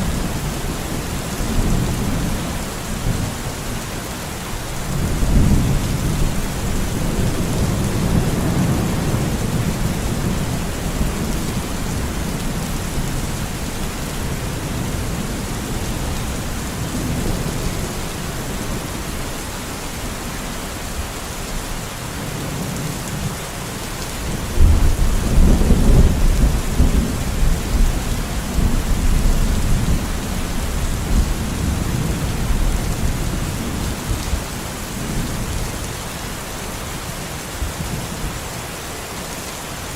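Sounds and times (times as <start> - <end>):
steady rain: 0.0 - 39.9
rolling thunder: 24.5 - 34.4.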